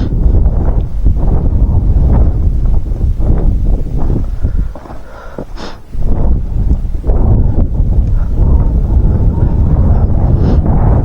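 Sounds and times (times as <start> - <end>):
wind buffeting microphone: 0.0 - 11.0
brief hiss: 5.6 - 5.8.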